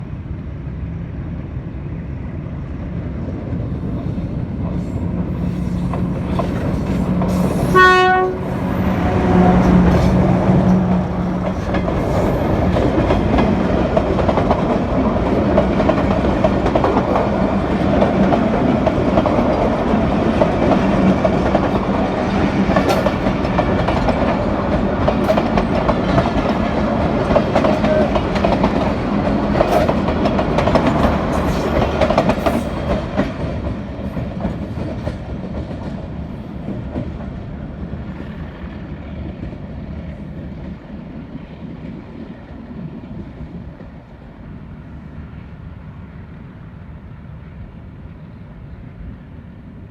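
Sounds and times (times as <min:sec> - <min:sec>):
train engine drone: 0:00.0 - 0:49.9
train rumbling and clattering on track: 0:00.0 - 0:49.9
train horn blast: 0:07.3 - 0:11.4.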